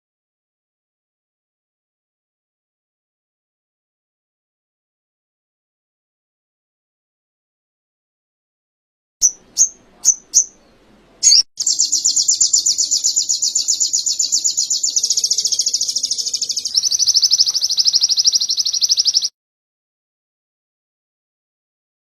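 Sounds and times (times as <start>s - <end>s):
songbird chirps and trill: 9.2s - 19.3s.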